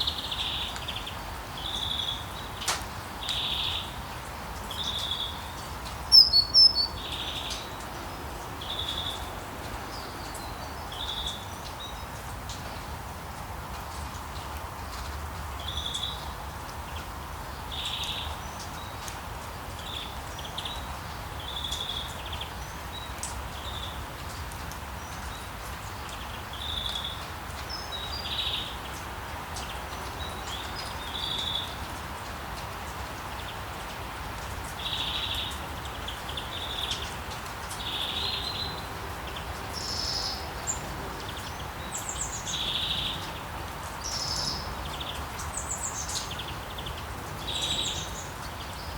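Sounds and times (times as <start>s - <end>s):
steady rain falling: 0.0s - 48.9s
birds chirping: 4.7s - 7.8s.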